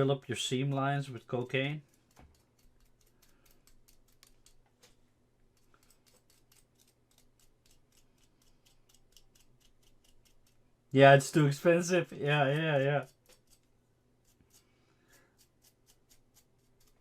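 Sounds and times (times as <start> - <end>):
faint tool clicks: 1.8 - 10.6.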